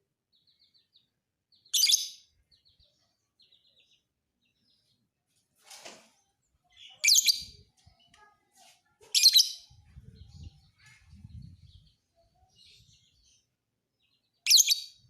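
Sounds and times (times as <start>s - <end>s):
lovebird chattering chirps: 14.5s - 15.0s.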